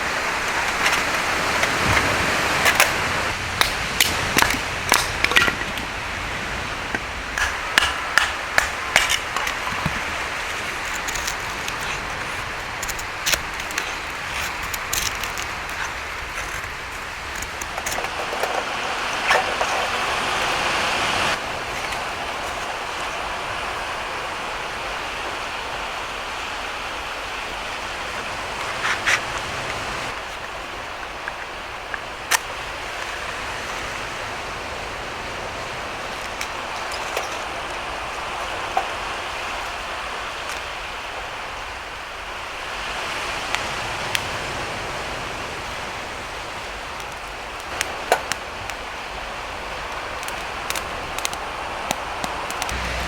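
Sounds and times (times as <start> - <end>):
campfire crackling: 0.0 - 53.0
sea waves: 0.0 - 53.0
wind: 0.0 - 53.0.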